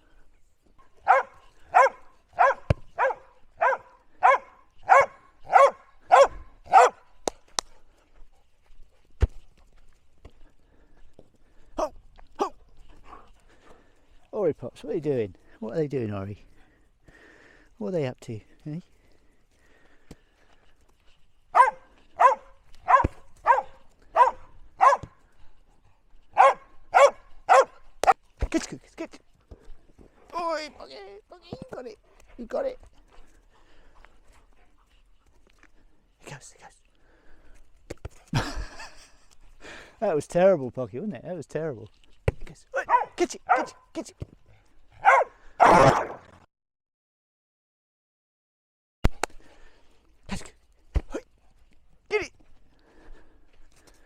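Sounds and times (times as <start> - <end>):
dog barking: 1.0 - 7.1, 21.5 - 25.1, 26.4 - 28.2, 42.8 - 43.8, 45.0 - 46.2.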